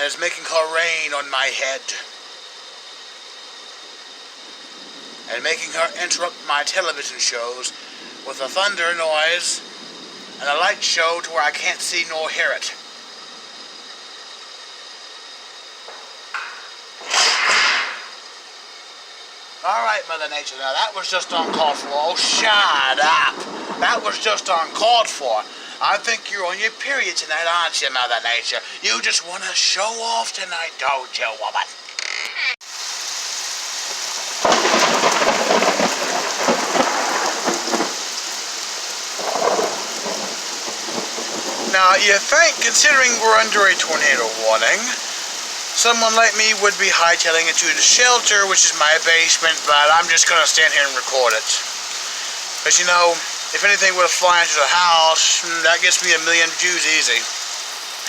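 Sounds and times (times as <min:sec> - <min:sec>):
crackling thunderclap: 0:00.0 - 0:15.9, 0:16.6 - 0:18.3, 0:19.4 - 0:28.3, 0:33.8 - 0:58.0
steady rain hiss: 0:00.0 - 0:58.0
loud thunder crack: 0:20.7 - 0:26.8, 0:34.4 - 0:45.0.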